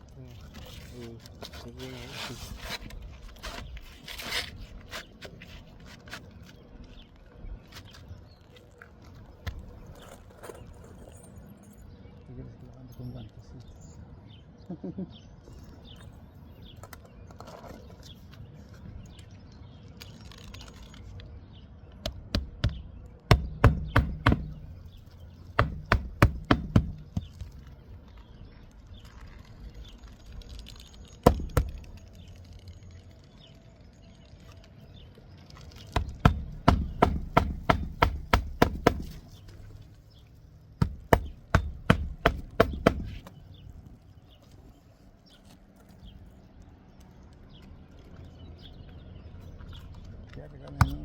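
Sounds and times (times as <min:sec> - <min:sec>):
hammer striking nails: 0:22.0 - 0:24.8, 0:25.5 - 0:27.5, 0:31.2 - 0:31.9, 0:35.9 - 0:39.3, 0:40.8 - 0:43.3.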